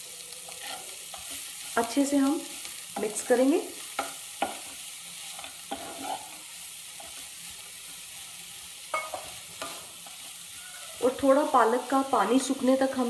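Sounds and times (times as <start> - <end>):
spinach sizzling in a pan: 0.0 - 13.0
spatula scraping and tapping pan: 0.5 - 2.0, 3.8 - 6.4, 8.9 - 10.3.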